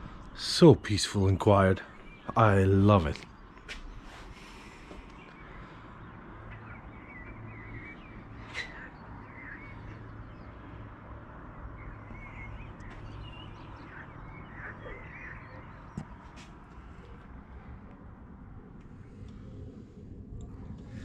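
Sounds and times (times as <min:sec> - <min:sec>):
birds chirping: 0:00.0 - 0:21.0
low hum: 0:00.0 - 0:21.0.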